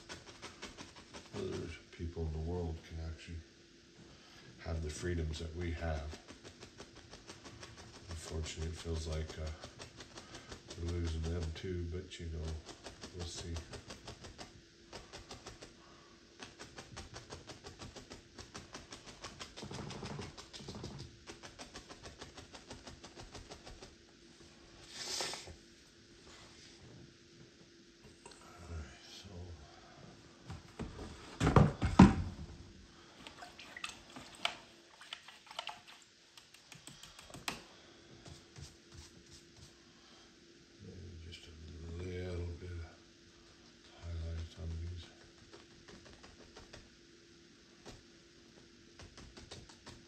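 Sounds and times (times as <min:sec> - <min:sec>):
brush strokes on canvas: 0:14.9 - 0:27.2, 0:37.8 - 0:40.3.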